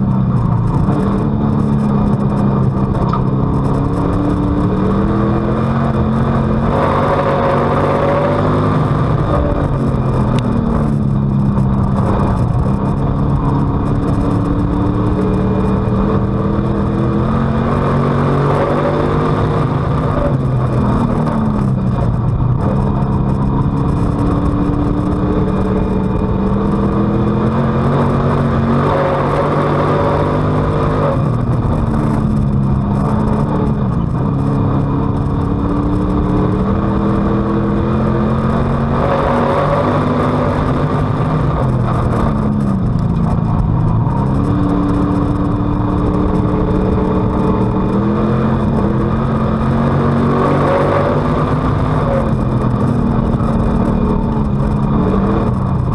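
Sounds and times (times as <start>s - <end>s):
race car engine revving: 0.0s - 55.9s.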